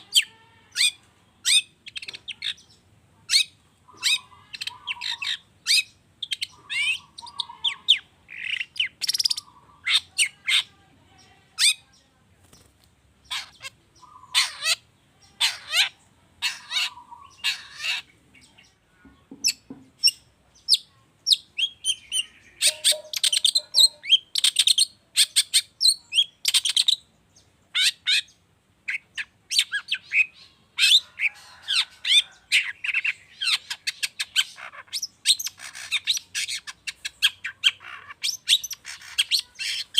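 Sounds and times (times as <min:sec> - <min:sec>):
shrike singing: 0:21.3 - 0:24.7.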